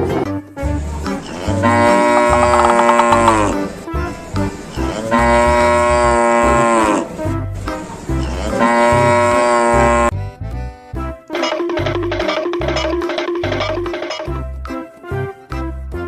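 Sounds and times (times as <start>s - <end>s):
background music with low beat: 0.0s - 5.8s, 9.9s - 16.0s
cow mooing: 1.2s - 3.7s, 4.7s - 7.2s, 8.1s - 10.1s.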